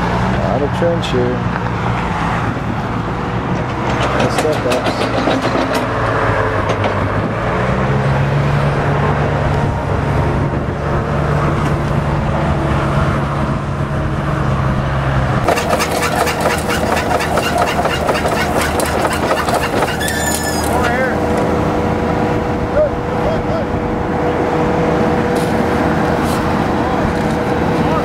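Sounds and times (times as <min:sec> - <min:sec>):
digging machine engine running: 0:03.5 - 0:07.2, 0:15.4 - 0:23.2.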